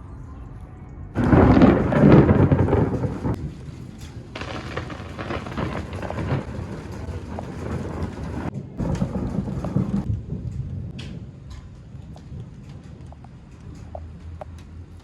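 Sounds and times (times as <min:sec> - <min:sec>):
rain falling: 0:01.2 - 0:13.7
low rolling thunder: 0:01.2 - 0:14.2.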